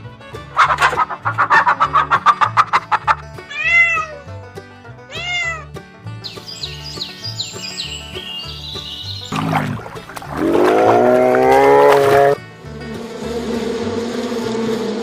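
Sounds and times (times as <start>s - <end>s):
rapid pulsing animal call: 0.6s - 4.0s, 8.7s - 12.4s
cat meowing: 3.5s - 4.2s, 5.1s - 5.7s.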